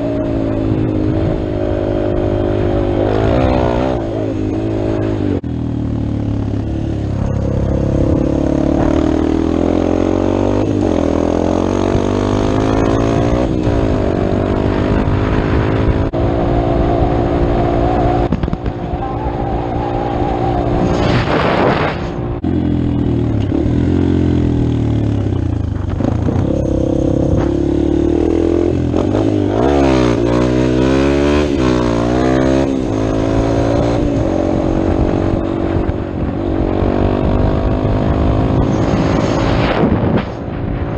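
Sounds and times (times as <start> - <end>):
dirt bike engine revving: 0.0 - 40.9
loud rush of noise: 14.5 - 22.8, 37.4 - 40.9.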